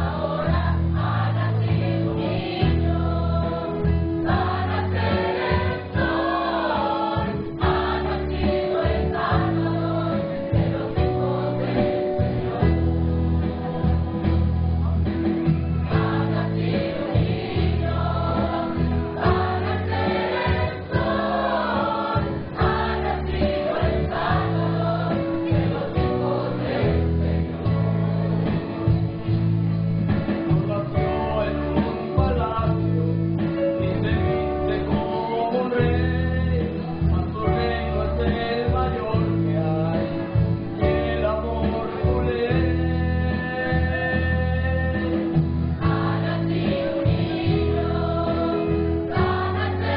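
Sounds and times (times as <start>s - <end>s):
choir singing: 0.0s - 14.6s, 15.9s - 28.9s, 45.8s - 49.9s
guitar accompaniment: 0.0s - 49.9s.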